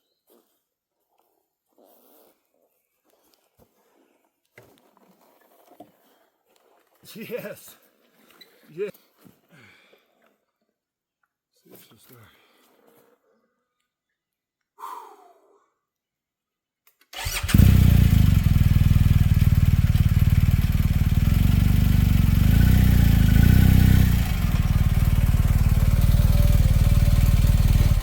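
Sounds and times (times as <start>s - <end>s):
electric starter cranking: 17.2s - 19.2s
motorcycle engine idling: 17.2s - 28.0s.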